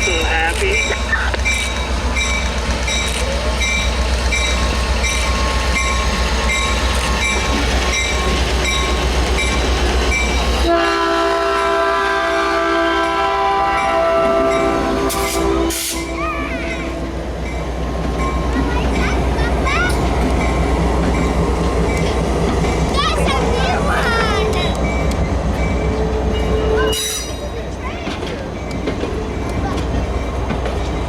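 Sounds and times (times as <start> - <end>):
diesel locomotive rumbling: 0.0 - 31.0
multi-chime train horn: 10.6 - 17.3.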